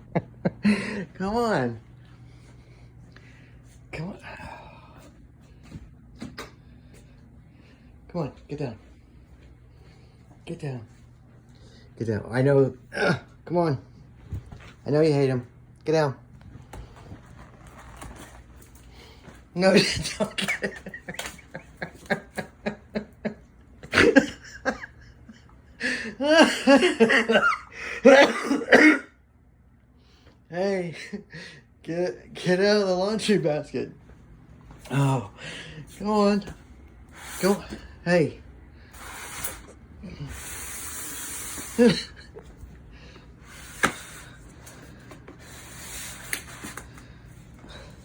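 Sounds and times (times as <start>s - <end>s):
person coughing and laughing: 12.9s - 13.4s, 19.7s - 22.8s, 23.8s - 29.2s.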